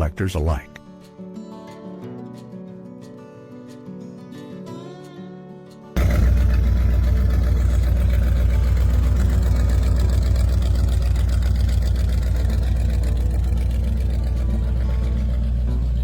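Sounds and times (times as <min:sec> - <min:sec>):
car engine idling: 0:06.0 - 0:16.0.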